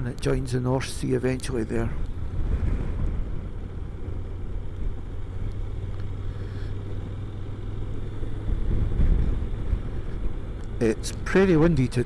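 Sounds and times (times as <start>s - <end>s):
wind rumbling on microphone: 1.3s - 5.7s, 8.2s - 11.3s
motorcycle engine running: 1.8s - 12.0s.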